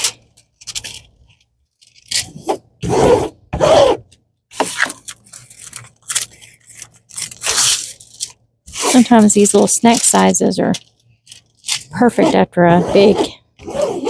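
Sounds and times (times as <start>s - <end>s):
plastic packaging crinkling: 4.8s - 12.1s.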